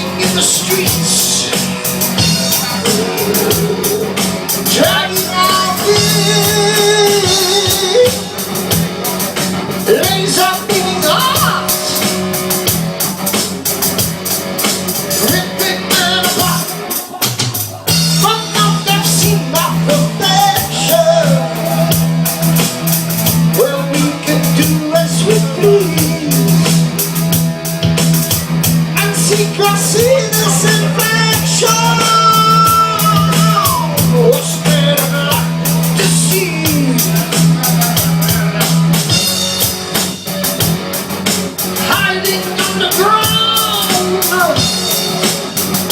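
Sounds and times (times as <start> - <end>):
rock band playing: 0.0 - 45.9
person singing: 2.4 - 8.2, 15.2 - 22.6, 23.5 - 27.0, 29.0 - 38.6, 41.8 - 44.7.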